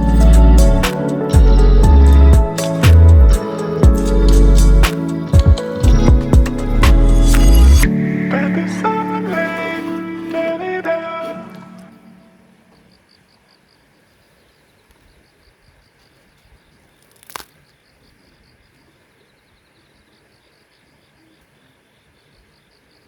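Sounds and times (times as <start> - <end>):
insect chirping trill: 0.0 - 9.4.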